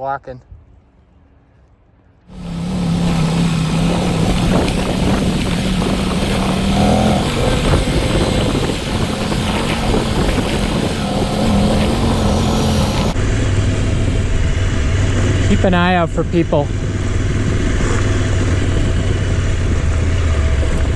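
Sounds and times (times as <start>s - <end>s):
wind rush: 2.3s - 15.5s
track noise: 2.3s - 20.8s
motorcycle engine under load: 2.3s - 20.9s.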